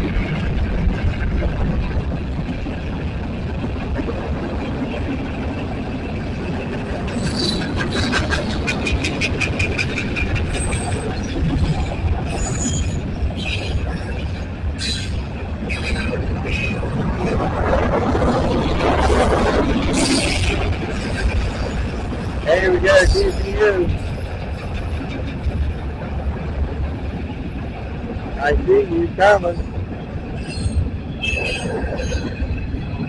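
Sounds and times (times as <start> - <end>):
freight train wheels rumbling: 0.0 - 33.0
high-pitched wheel squeals: 30.4 - 32.5.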